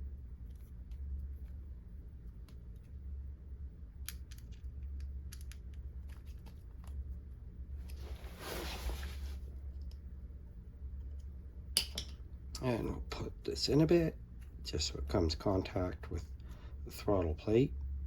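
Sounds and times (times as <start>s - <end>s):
steady low hum: 0.0s - 18.0s
light clicks and taps: 4.0s - 7.0s.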